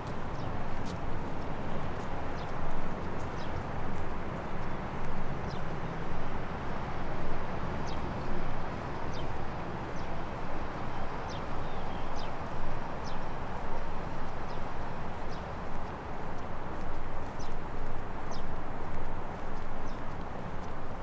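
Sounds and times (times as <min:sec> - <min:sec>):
small birds chirping: 0:10.8 - 0:13.3.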